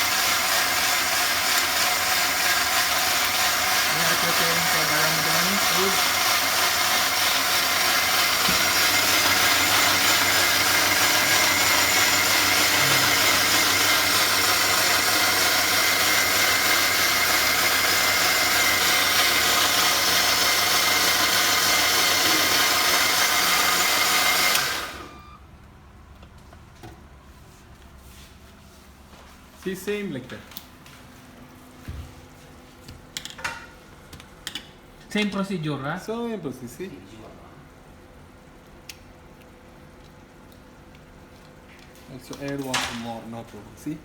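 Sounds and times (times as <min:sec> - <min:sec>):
mixer grinder running: 0:00.0 - 0:25.4.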